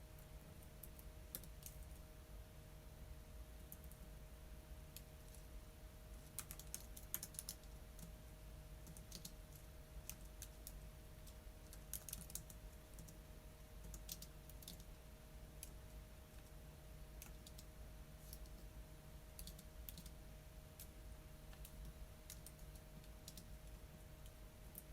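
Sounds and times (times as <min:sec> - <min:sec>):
faint steady hum: 0:00.0 - 0:24.9
keyboard typing clicks: 0:00.8 - 0:01.8, 0:06.3 - 0:08.1, 0:08.8 - 0:09.4, 0:10.1 - 0:13.2, 0:13.8 - 0:14.9, 0:17.2 - 0:17.7, 0:19.4 - 0:20.2, 0:21.5 - 0:23.5.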